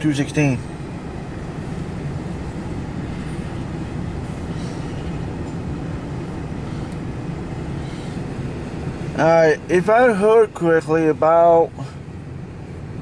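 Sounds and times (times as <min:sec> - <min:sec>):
freight train wheels rumbling on rail: 0:00.0 - 0:10.3.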